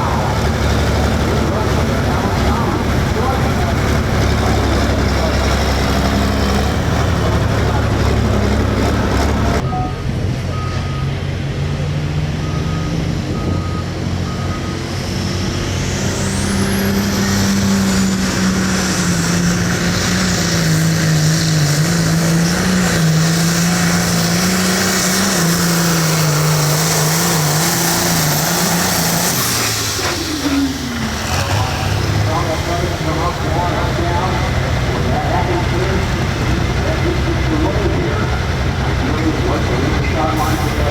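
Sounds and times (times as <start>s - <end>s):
tractor engine at full throttle: 0.0s - 40.9s.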